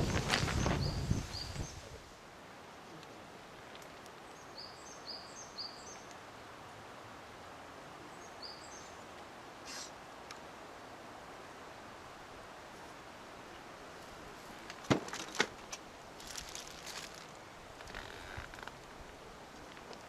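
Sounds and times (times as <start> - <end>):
faint outdoor hiss: 0.0 - 20.0
brief hiss: 9.6 - 10.0.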